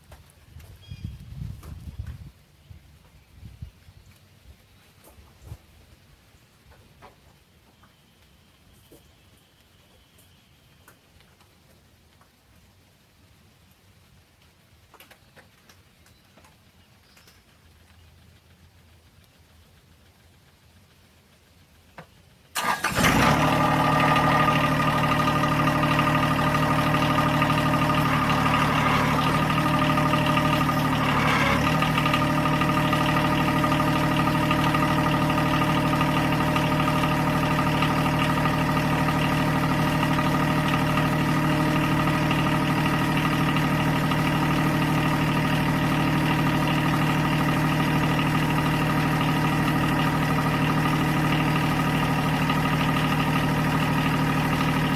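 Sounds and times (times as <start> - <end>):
tractor diesel engine running: 17.6 - 54.9.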